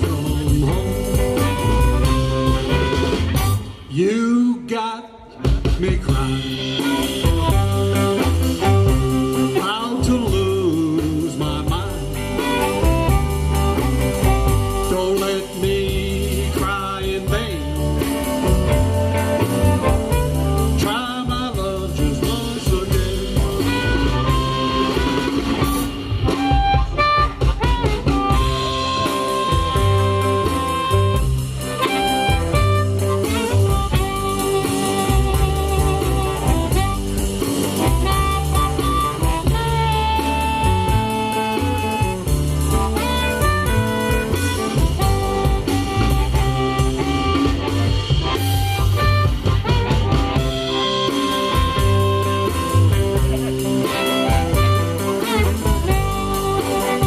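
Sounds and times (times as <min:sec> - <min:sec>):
harmonica: 0:00.0 - 0:03.9, 0:06.2 - 0:57.0
bass guitar: 0:00.0 - 0:57.0
blues band playing: 0:00.0 - 0:57.0
drums: 0:00.0 - 0:57.0
electric guitars: 0:00.0 - 0:57.0.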